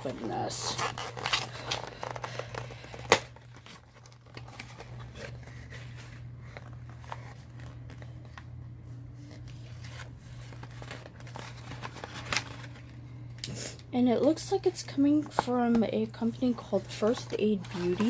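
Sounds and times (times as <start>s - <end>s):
packaging rustling and clicking: 0.0s - 8.5s, 9.3s - 13.5s, 15.2s - 18.0s.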